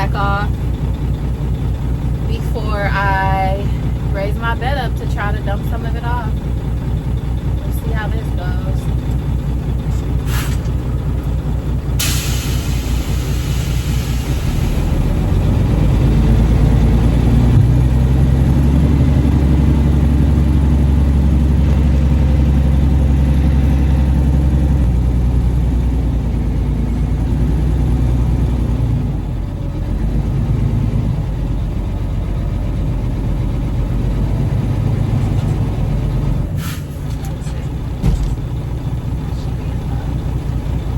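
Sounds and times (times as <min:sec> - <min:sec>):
diesel truck engine running: 0:00.0 - 0:40.9
air hiss: 0:12.0 - 0:14.6.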